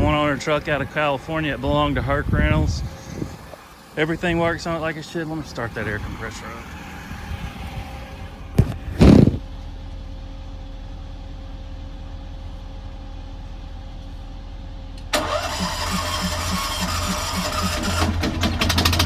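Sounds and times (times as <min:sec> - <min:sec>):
pulsing welder generator and compressor: 0:00.0 - 0:09.5, 0:15.1 - 0:19.0
engine idling: 0:00.0 - 0:19.0.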